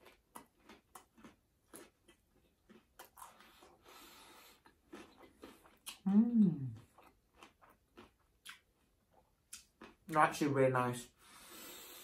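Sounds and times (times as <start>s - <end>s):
chewing crunchy fried food: 0.0s - 10.5s
wet mouth clicks: 5.8s - 6.9s.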